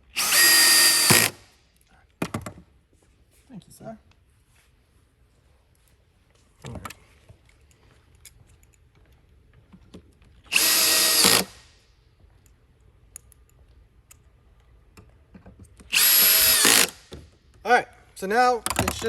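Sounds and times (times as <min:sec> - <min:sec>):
cordless drill driving screws: 0:00.0 - 0:01.5, 0:10.5 - 0:11.6, 0:15.9 - 0:17.2.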